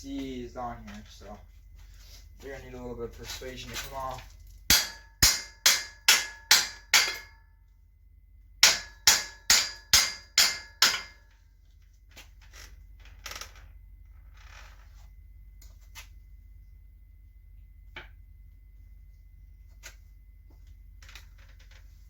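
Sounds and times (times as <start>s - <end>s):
hammer striking metal: 4.7s - 7.4s, 8.6s - 11.2s.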